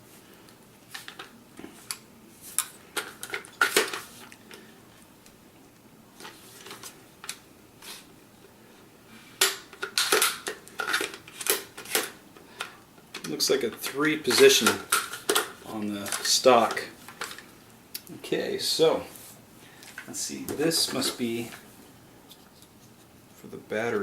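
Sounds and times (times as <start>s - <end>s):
rifle parts clicking and rattling: 9.4s - 12.2s.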